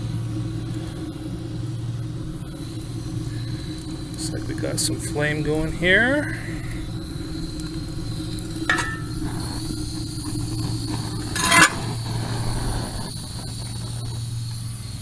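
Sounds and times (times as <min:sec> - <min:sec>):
water heater humming: 0:00.0 - 0:13.1
brief scrape: 0:11.3 - 0:11.9.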